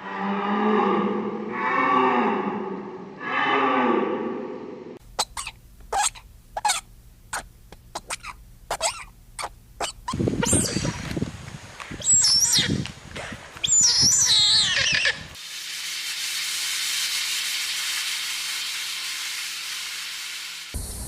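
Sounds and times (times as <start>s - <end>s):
high-pitched wavering animal calls: 5.2s - 10.9s, 13.6s - 15.3s
steady high hiss: 15.2s - 21.0s.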